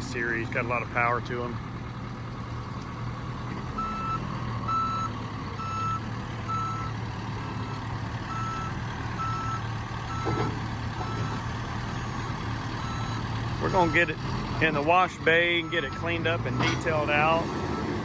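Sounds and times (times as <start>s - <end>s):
diesel engine running: 0.0s - 18.0s
backup alarm beeps: 3.8s - 10.4s, 12.0s - 14.1s.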